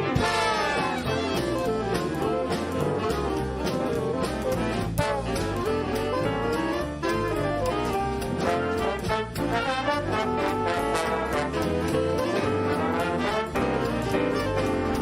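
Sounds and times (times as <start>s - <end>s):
bass and drums: 0.0s - 15.0s
jazz band playing: 0.0s - 15.0s
saxophones and brass: 0.0s - 15.0s.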